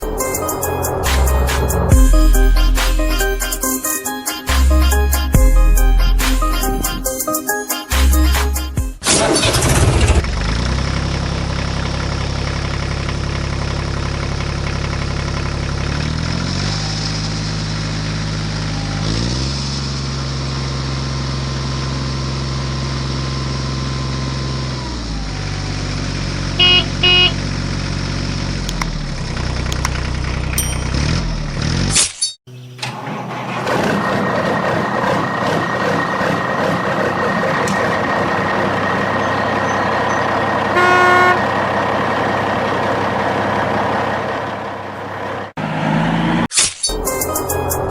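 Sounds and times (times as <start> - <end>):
vehicle engine revving: 9.5 - 32.0, 40.5 - 46.5
horn honks: 26.6 - 27.5, 40.7 - 41.8.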